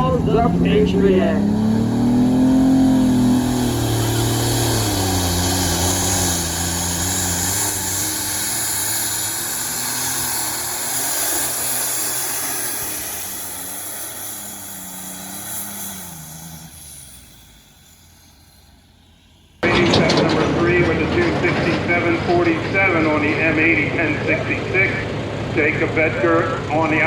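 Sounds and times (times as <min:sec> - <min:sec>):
tractor engine running hard: 0:00.0 - 0:27.0
high hiss: 0:04.3 - 0:19.6.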